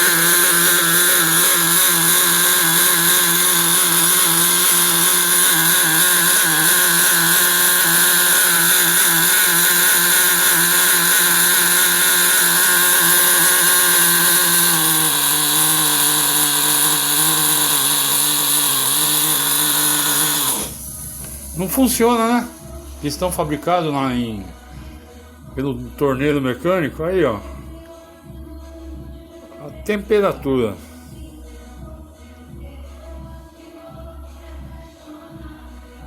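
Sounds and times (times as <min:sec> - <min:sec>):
model engine buzzing: 0:00.0 - 0:22.2.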